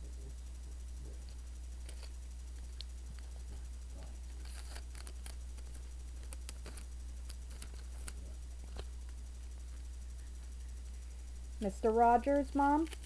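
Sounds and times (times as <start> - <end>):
low electrical hum: 0.0 - 13.0
cardboard and tape crinkling: 4.3 - 9.2.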